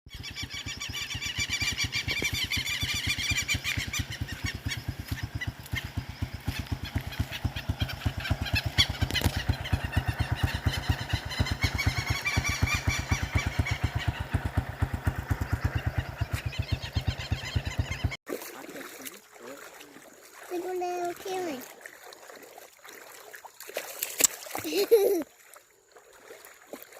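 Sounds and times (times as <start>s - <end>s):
small engine running: 0.1s - 18.2s.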